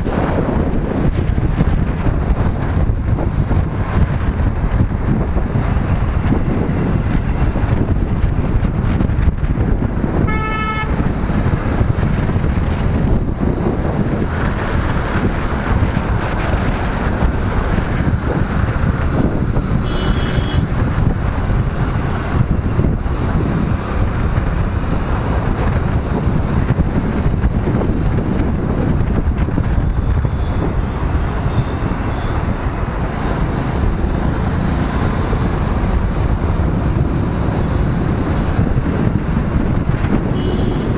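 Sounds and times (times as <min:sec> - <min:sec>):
motorcycle engine and road noise: 0:00.0 - 0:40.9
vehicle horn honking: 0:10.2 - 0:11.2, 0:19.8 - 0:20.7, 0:40.3 - 0:40.9
short high horn toot: 0:10.3 - 0:11.1, 0:40.4 - 0:40.9.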